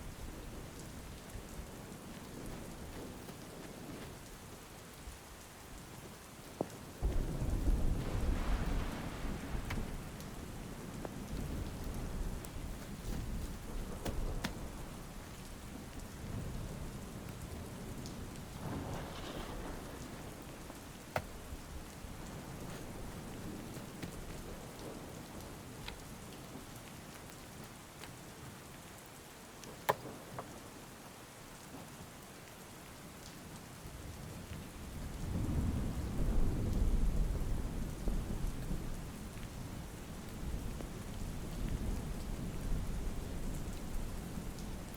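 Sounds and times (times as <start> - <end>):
steady rain falling: 0.0 - 44.9
thunder rumbling: 7.0 - 26.4, 34.8 - 44.9.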